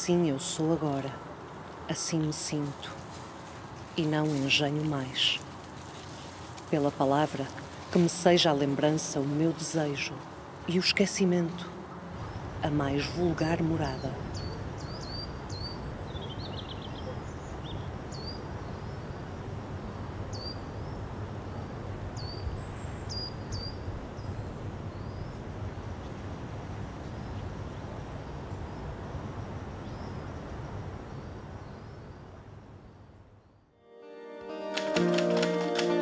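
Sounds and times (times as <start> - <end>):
small birds chirping: 2.2 - 19.3.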